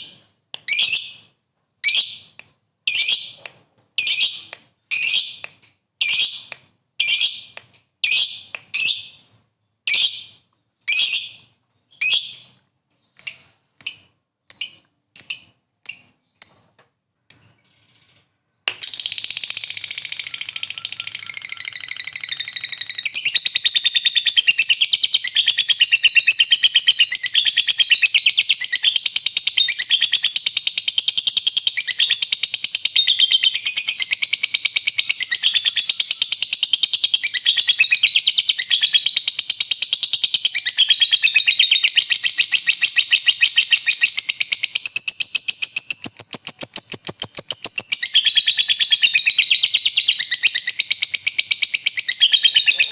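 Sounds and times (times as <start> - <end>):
bird chirping and trilling: 0.0 - 3.4, 4.0 - 5.4, 6.0 - 52.9.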